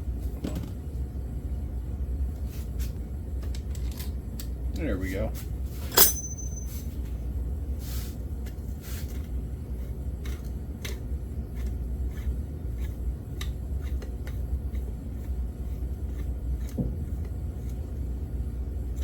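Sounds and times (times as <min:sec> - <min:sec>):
metal bolts clicking: 0:05.9 - 0:06.7.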